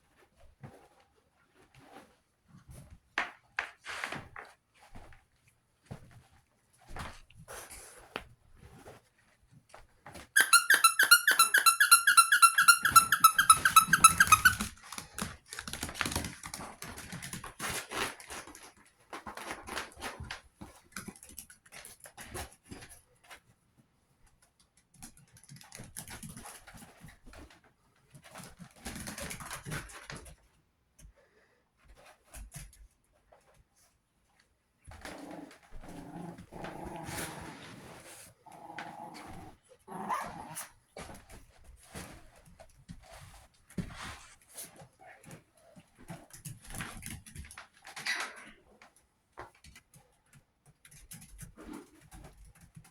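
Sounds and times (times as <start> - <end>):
puppies scuffling and clicking: 0.0 - 37.4, 40.6 - 52.9
high pulsing squeak: 10.4 - 14.6
puppies yipping: 10.4 - 14.7.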